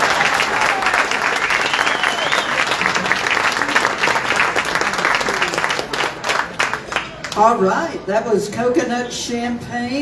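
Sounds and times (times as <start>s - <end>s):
whistling from audience: 0.0s - 3.0s
audience applauding and cheering: 0.0s - 7.4s.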